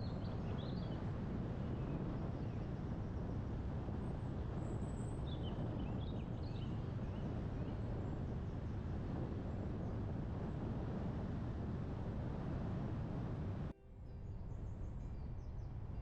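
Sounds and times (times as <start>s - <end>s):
wind and road noise rumble: 0.0s - 16.0s.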